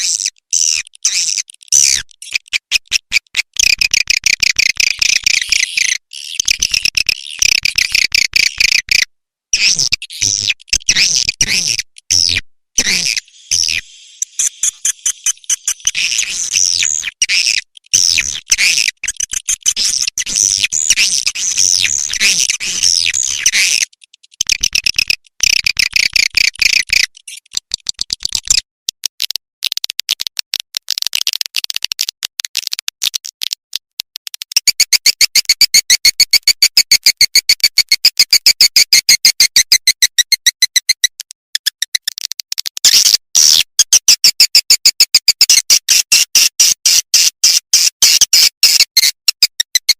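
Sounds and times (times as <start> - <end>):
swiftlets chirping: 12.9 - 17.0.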